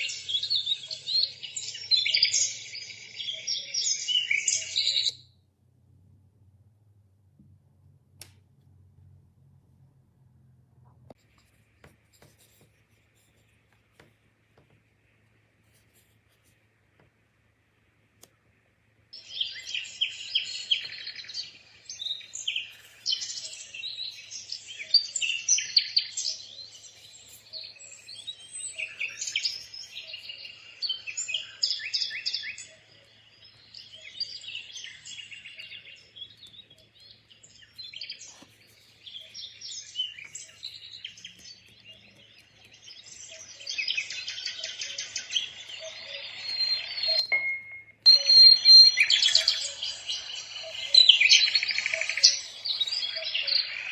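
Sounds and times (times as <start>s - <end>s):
birds chirping and trilling: 0.0s - 5.3s, 19.1s - 53.9s
faint low hum: 5.2s - 19.2s.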